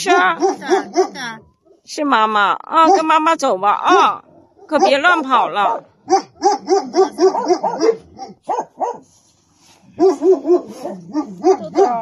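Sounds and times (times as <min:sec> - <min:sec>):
small dog barking: 0:00.0 - 0:01.4, 0:02.8 - 0:03.1, 0:03.9 - 0:09.0, 0:10.0 - 0:12.0.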